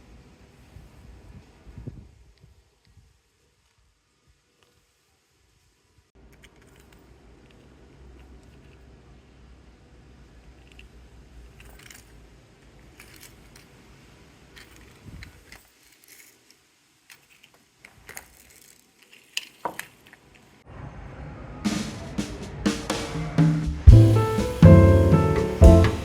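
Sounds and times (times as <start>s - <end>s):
small hard objects clicking: 14.5s - 20.6s
background music: 23.7s - 26.0s.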